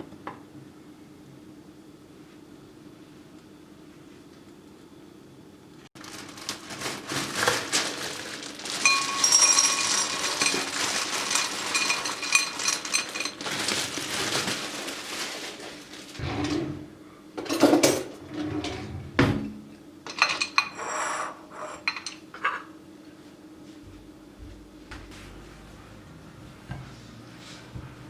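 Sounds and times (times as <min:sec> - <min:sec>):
dishes and cutlery clinking: 0:08.8 - 0:13.5, 0:20.1 - 0:22.7, 0:26.5 - 0:27.9.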